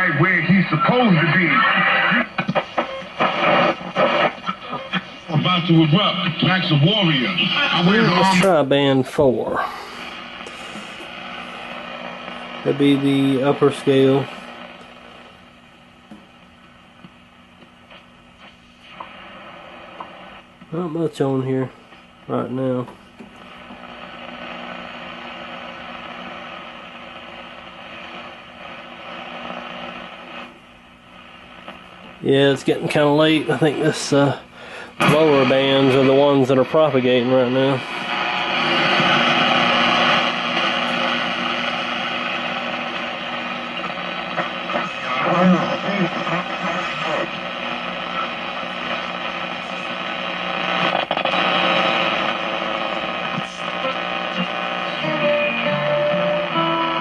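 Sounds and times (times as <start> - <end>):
faint voice on radio: 0.0 - 2.6, 3.2 - 8.6, 39.8 - 55.3
radio static hiss: 0.0 - 57.0.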